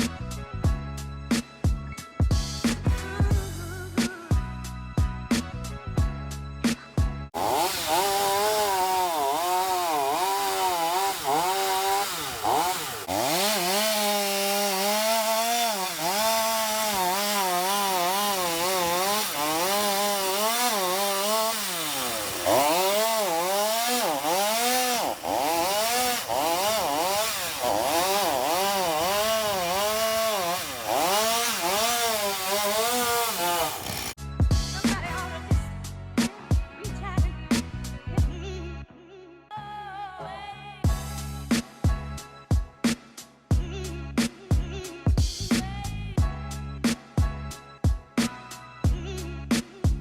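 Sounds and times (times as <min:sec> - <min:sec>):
chainsaw cutting wood: 0:07.4 - 0:34.2.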